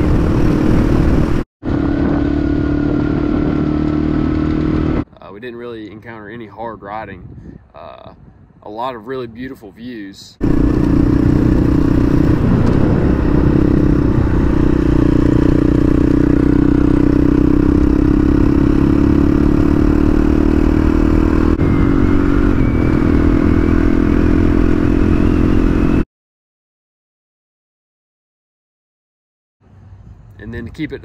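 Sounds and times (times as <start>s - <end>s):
motorcycle engine running: 0.0s - 5.0s, 10.4s - 26.0s
gravel rattling under tyres: 10.4s - 19.6s.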